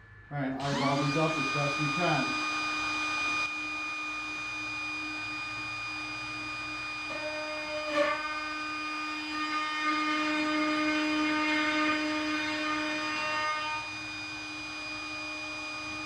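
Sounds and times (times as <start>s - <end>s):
router whining: 0.0s - 16.0s.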